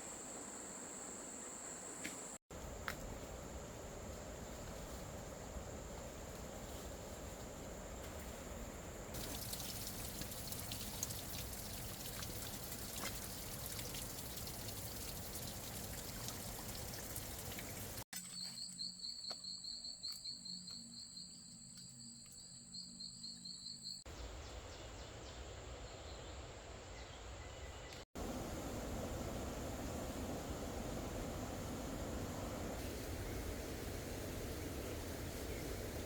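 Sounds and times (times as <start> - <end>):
rain and running water: 9.1 - 18.1, 28.2 - 36.0.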